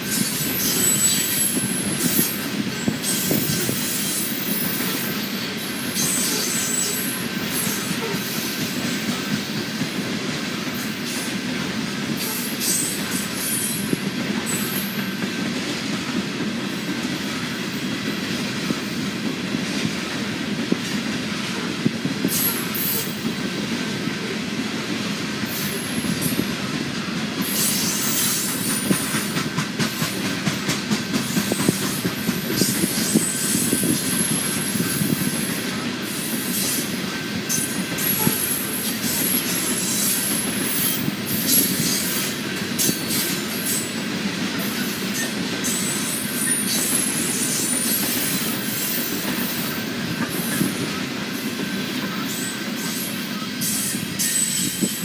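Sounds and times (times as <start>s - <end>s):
train wheels rumbling on rails: 0.0s - 55.0s
high-pitched wheel squeal: 0.6s - 2.4s, 52.3s - 55.0s.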